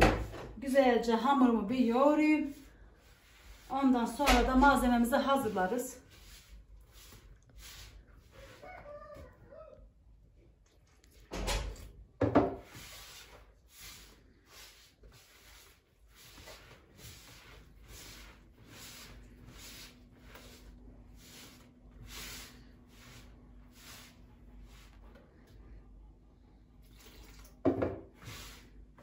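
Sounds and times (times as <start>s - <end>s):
dough squishing while kneaded: 1.3s - 10.6s, 12.6s - 26.0s
chicken calling: 8.4s - 9.9s.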